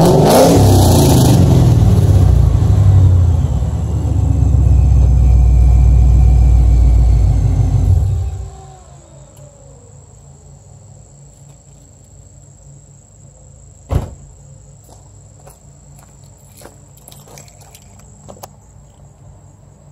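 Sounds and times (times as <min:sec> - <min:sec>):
car engine idling: 0:01.4 - 0:11.8
crickets chirring: 0:03.4 - 0:19.9.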